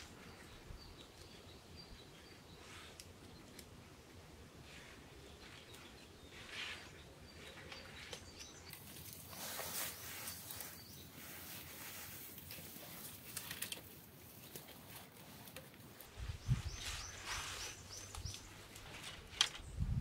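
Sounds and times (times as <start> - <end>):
songbird chirping: 0.0 - 20.0
rustling leaf litter: 4.6 - 19.7.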